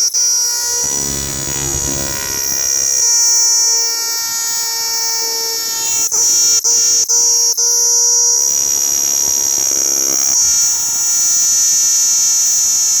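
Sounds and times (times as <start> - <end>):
cicada buzzing: 0.4 - 3.8.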